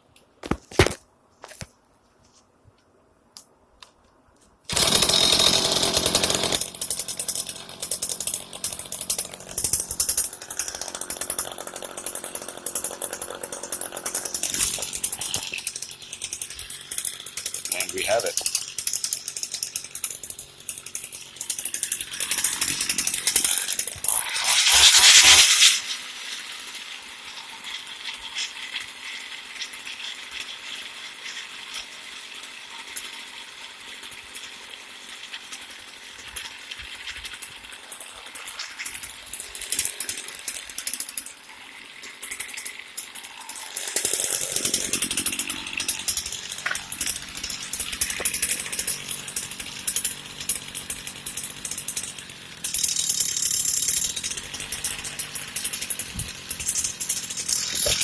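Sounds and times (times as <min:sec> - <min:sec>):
string trimmer engine running: 0:04.7 - 0:58.0.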